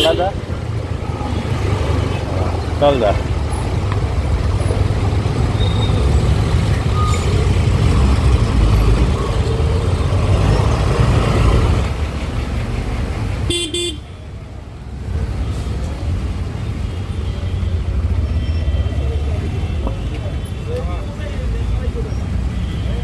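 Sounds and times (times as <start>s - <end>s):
road and wind rumble: 0.0s - 23.0s
vehicle horn toots: 13.5s - 14.2s.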